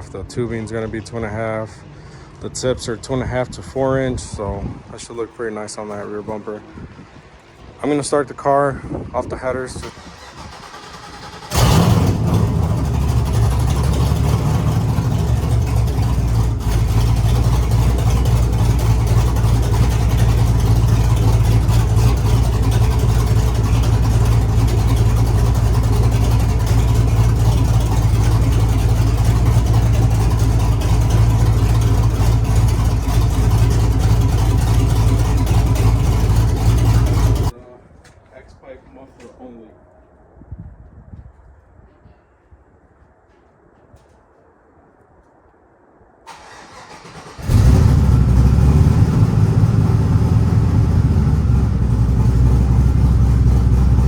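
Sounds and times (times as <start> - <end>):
car engine starting and idling: 9.3 - 37.5, 46.3 - 54.0.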